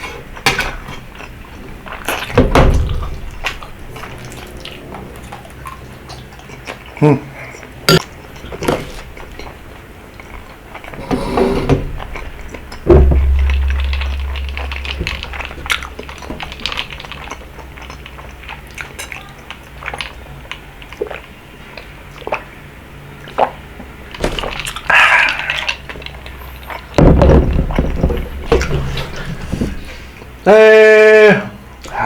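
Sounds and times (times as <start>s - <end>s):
heavy low thump: 2.4s - 3.9s, 11.0s - 16.9s, 27.0s - 28.9s
mouth eating sounds: 5.6s - 8.4s.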